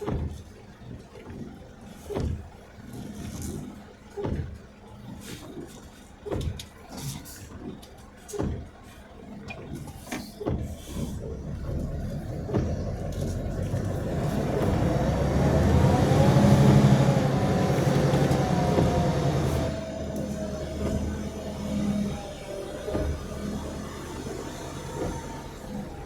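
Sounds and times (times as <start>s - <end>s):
vehicle engine running with whine: 10.4s - 26.0s.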